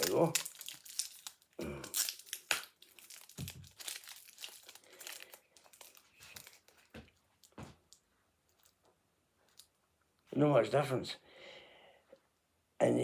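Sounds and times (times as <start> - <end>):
sharp tape crackles: 0.0 - 9.8
sticky tape crinkling and rustling: 0.0 - 9.8.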